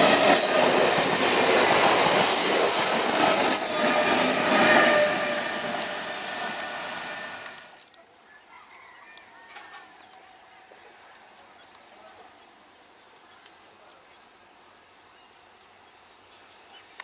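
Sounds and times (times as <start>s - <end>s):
train wheels on rails: 0.0s - 7.8s.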